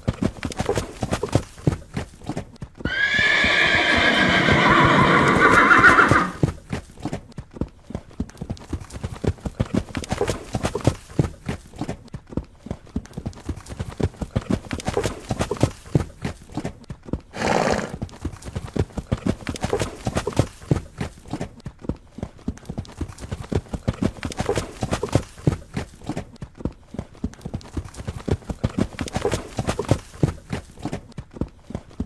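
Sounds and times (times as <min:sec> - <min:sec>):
horse hooves clip-clopping: 0:00.0 - 0:32.0.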